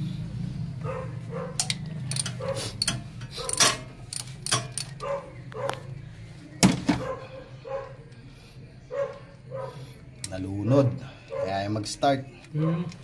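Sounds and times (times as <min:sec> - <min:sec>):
dog barking: 0:00.8 - 0:01.6, 0:02.4 - 0:02.7, 0:05.0 - 0:05.9, 0:07.0 - 0:08.1, 0:08.9 - 0:09.8, 0:11.3 - 0:11.7.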